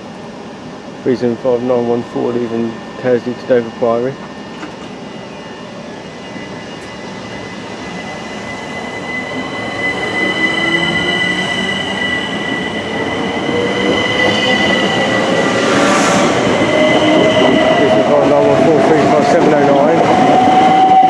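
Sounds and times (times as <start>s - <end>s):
steady high tones: 6.1s - 19.0s.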